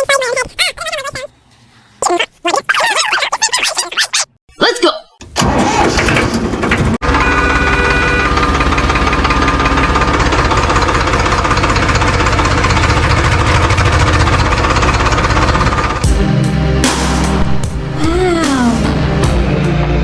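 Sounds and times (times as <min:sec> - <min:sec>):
tractor engine chugging: 0:06.5 - 0:16.6
music: 0:16.0 - 0:20.0.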